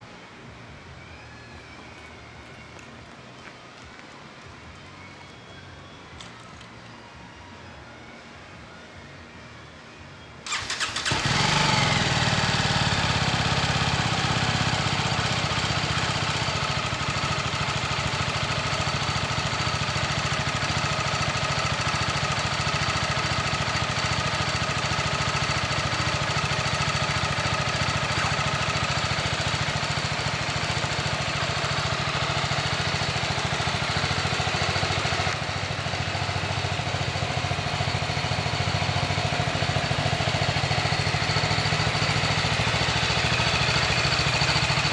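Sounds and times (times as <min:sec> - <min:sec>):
motorcycle engine starting and idling: 0:10.4 - 0:44.9.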